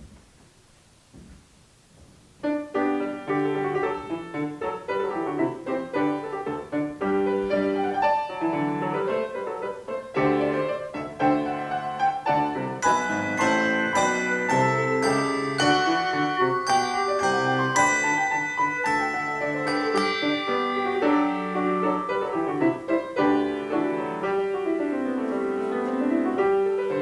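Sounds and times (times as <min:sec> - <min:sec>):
keyboard playing hymn melody: 0:02.5 - 0:27.0
bright ringing bell strikes: 0:12.8 - 0:22.6.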